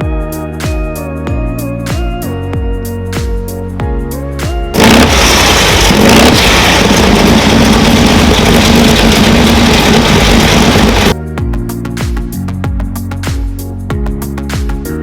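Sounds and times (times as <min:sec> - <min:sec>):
car engine running: 0:04.8 - 0:11.2.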